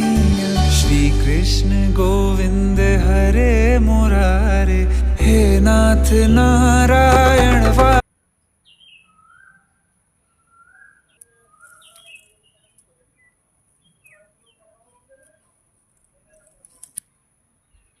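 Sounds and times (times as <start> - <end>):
birds chirping: 8.6 - 15.6.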